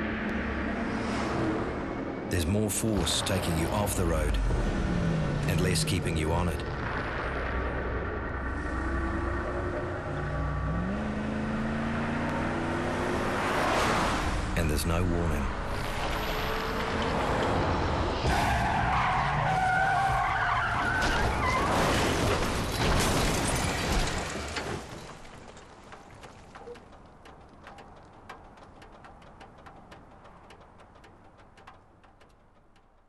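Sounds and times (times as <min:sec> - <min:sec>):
faint ticks and clicks: 0:25.5 - 0:33.0.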